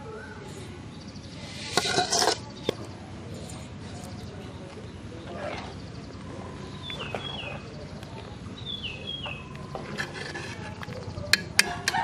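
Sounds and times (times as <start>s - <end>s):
ladle knocking metal pot: 11.3s - 12.0s.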